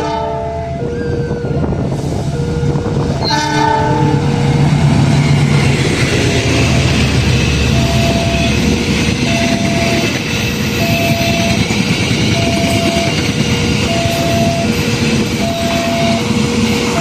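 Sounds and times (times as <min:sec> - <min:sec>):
train rolling rumble: 0:00.0 - 0:17.0
crossing alarm two tones: 0:07.3 - 0:17.0.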